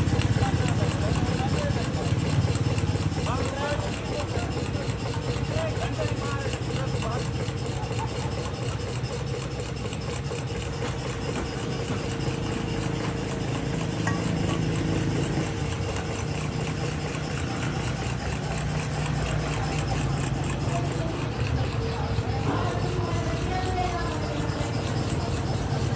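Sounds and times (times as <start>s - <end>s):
motor humming: 0.0s - 25.9s
continuous rasping hiss: 10.5s - 25.9s.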